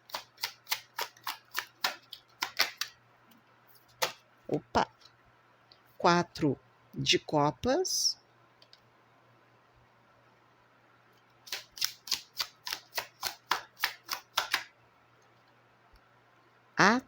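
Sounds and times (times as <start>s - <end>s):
cards being shuffled: 0.1s - 3.0s, 3.8s - 4.2s, 11.5s - 14.7s.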